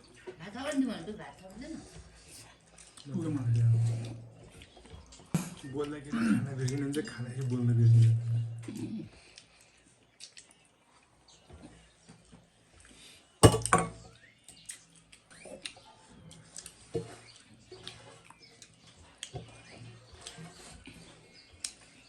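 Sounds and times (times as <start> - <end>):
chewing and lip smacks: 2.4 - 3.1, 4.4 - 5.3, 8.6 - 11.4, 14.5 - 22.0
small clicks of food: 8.7 - 13.0, 14.4 - 22.0.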